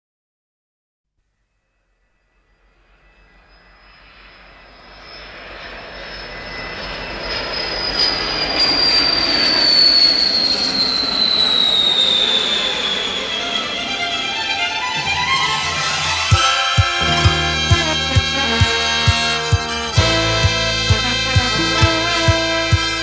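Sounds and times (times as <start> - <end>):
jet engine roar and whine: 2.9 - 20.4.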